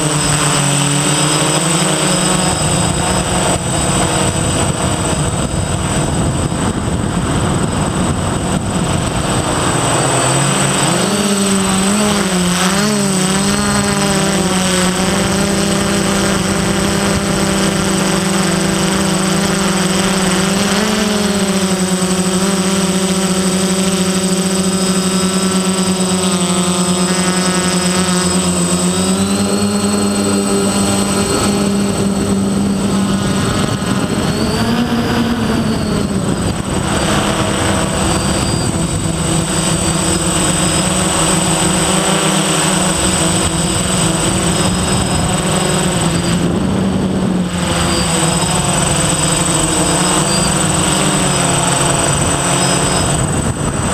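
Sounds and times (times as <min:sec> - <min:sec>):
quadcopter motors whining: 0:00.0 - 0:53.9.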